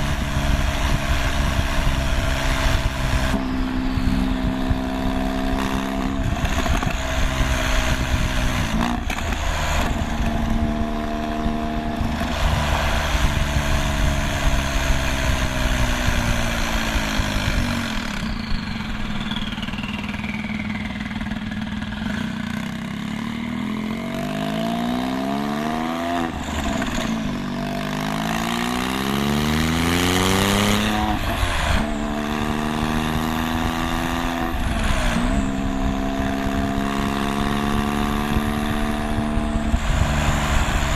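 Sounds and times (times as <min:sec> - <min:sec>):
car engine revving: 0:23.7 - 0:40.9.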